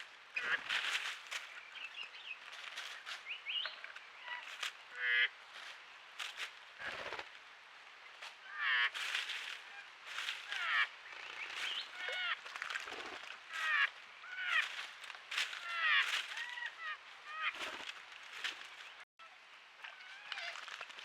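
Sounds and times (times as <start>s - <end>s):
birds chirping and warbling: 0.0s - 5.7s, 8.4s - 19.0s.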